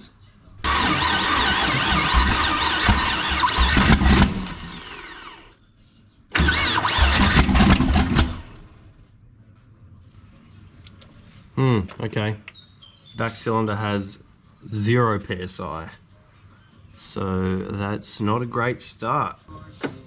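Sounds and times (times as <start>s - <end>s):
engine cranking on starter: 0.6s - 5.5s, 6.3s - 8.9s.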